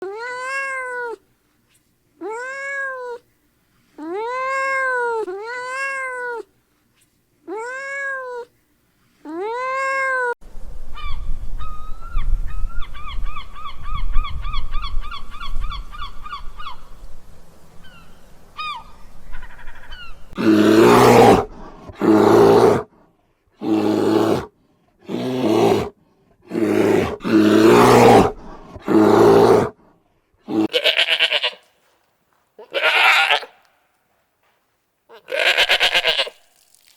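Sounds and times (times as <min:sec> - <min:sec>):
background noise: 0:00.0 - 0:36.9
harsh animal calls: 0:32.6 - 0:33.6, 0:35.1 - 0:36.4.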